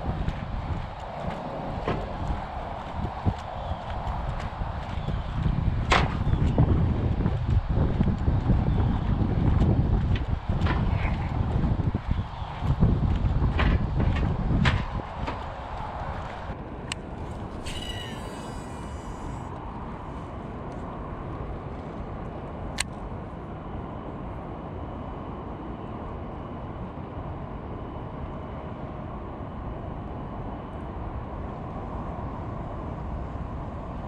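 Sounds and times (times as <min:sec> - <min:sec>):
wind buffeting microphone: 0:00.0 - 0:34.0
short high whir: 0:17.5 - 0:19.5.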